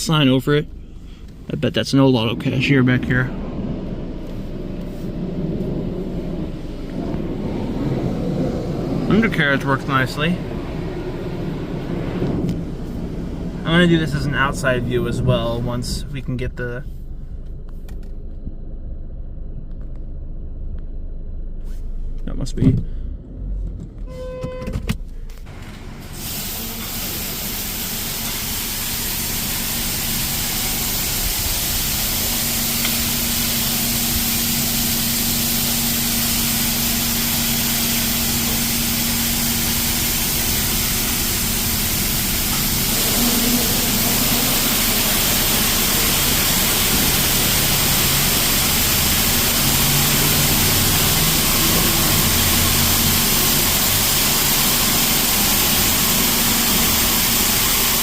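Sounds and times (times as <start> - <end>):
high-pressure water jets hissing: 6.2 - 15.6, 25.5 - 58.0.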